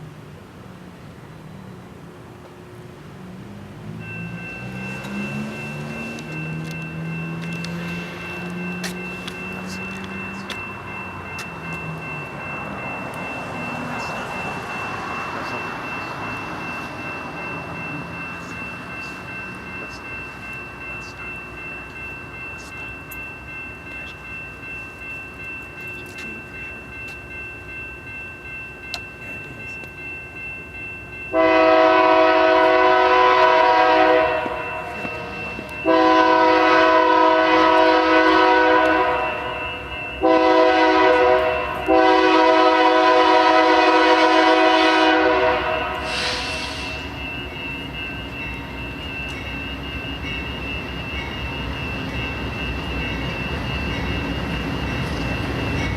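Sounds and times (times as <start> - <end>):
locomotive air horn blasts: 31.4 - 34.6, 35.8 - 39.6, 40.2 - 47.0.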